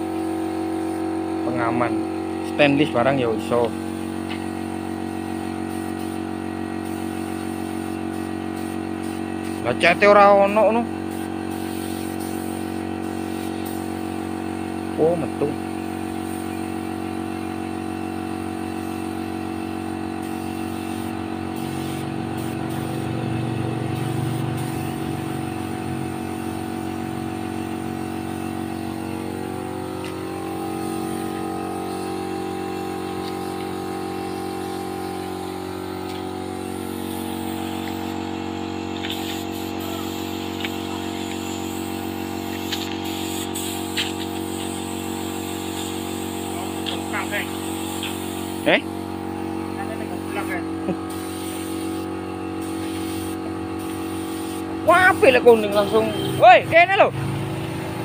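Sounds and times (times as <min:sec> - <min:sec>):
motor humming: 0:18.7 - 0:53.9.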